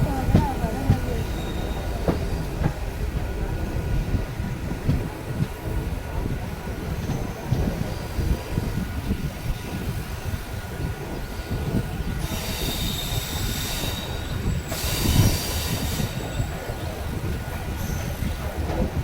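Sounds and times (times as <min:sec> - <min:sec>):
train rumbling: 0:00.0 - 0:19.0
train wheels squealing: 0:01.0 - 0:02.6, 0:06.7 - 0:08.6, 0:11.3 - 0:18.6.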